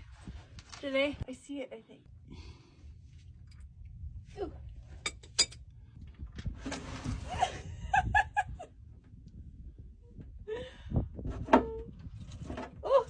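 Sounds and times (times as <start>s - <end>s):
woman laughing: 7.3s - 8.7s.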